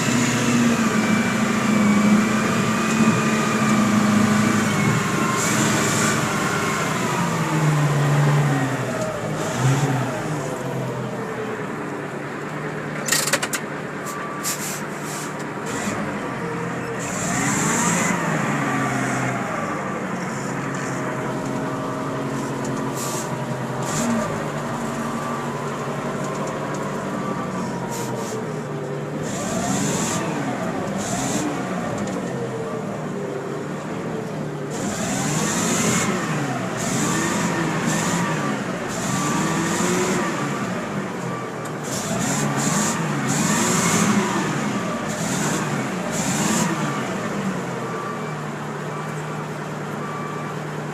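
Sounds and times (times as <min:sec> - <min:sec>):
diesel truck engine running: 0:00.0 - 0:50.9.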